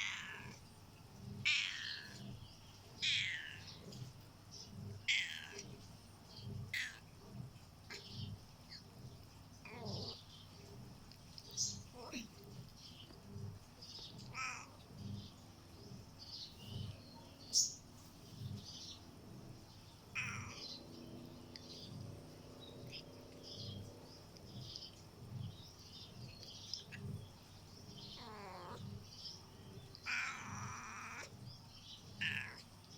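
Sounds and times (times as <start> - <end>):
cat meowing: 0.0 - 0.6, 1.4 - 2.3, 3.0 - 3.7, 5.1 - 5.7, 6.7 - 7.0, 9.7 - 10.2, 14.3 - 14.8, 20.1 - 20.8, 28.2 - 28.9, 30.0 - 31.3, 32.2 - 32.6.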